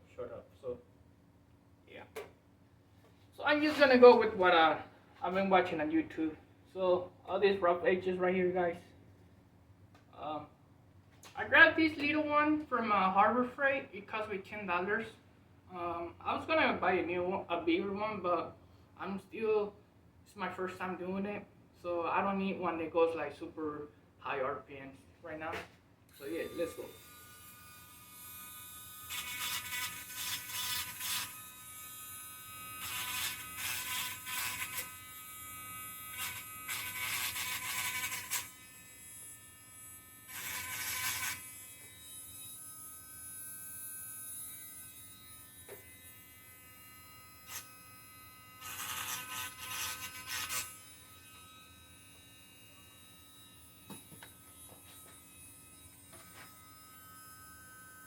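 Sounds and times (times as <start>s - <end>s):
rotary tool grinding metal: 26.1s - 58.0s
rotary tool whining: 48.5s - 52.6s.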